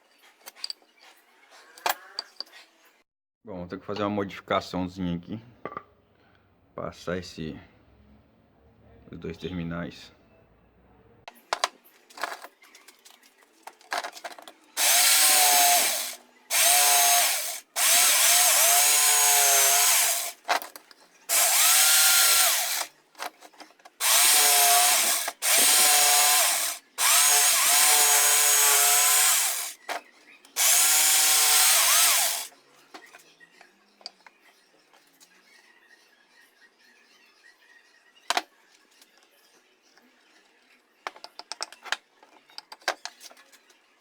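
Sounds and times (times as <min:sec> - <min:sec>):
electric drill boring through wood: 0:14.8 - 0:20.4, 0:21.3 - 0:22.9, 0:24.0 - 0:29.8, 0:30.6 - 0:32.5.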